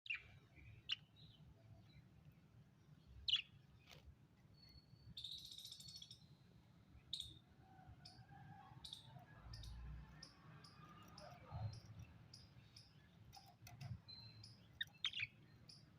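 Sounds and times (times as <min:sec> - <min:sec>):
parrot chirping: 0:14.1 - 0:15.8.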